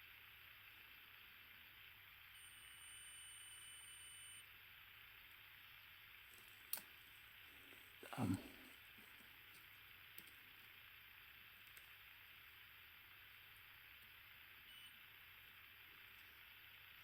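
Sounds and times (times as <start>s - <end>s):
multimeter continuity beep: 2.3s - 4.4s, 14.6s - 15.2s.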